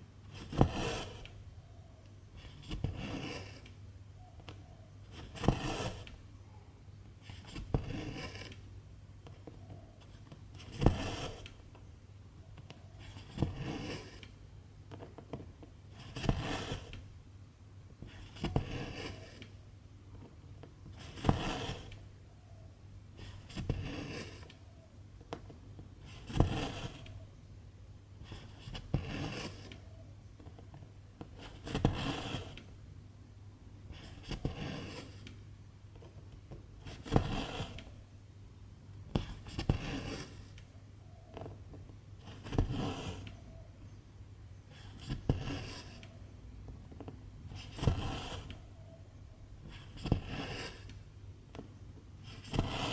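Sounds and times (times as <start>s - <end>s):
needle poking through fabric: 52.2s - 52.9s.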